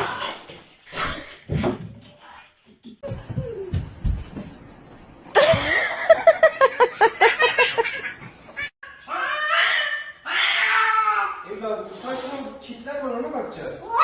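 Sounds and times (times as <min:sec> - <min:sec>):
person laughing: 0:05.4 - 0:08.0.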